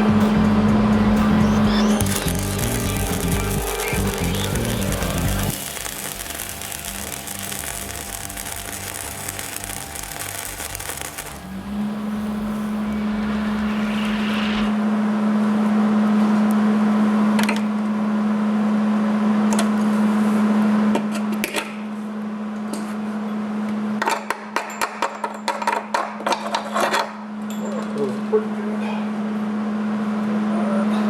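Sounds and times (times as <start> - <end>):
welder humming: 1.2 - 14.7
welding arc crackling: 1.6 - 14.2.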